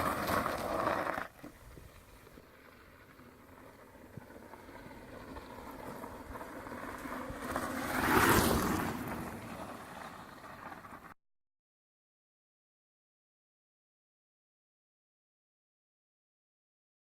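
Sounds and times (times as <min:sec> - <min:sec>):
electric motorcycle passing: 0:00.0 - 0:11.1
tyre noise: 0:00.0 - 0:11.1.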